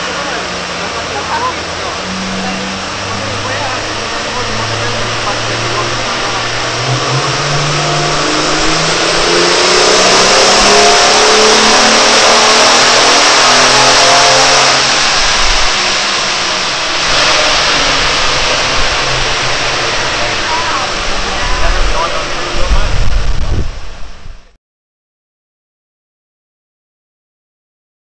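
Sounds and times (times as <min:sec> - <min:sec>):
car engine revving at full throttle: 0:00.0 - 0:24.6.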